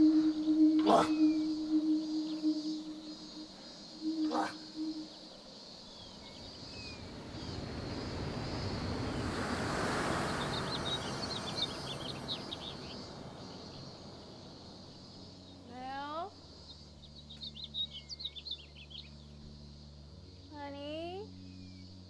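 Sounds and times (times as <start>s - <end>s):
low steady hum: 0.0s - 5.3s
small birds chirping: 0.0s - 22.0s
broad rushing sound: 6.9s - 14.5s.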